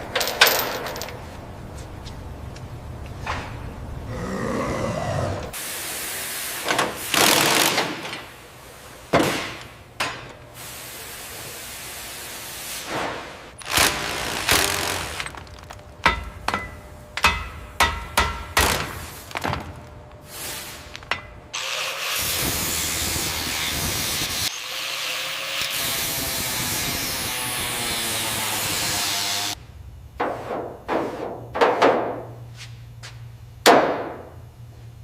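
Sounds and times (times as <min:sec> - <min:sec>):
power tool running: 0:13.6 - 0:15.7.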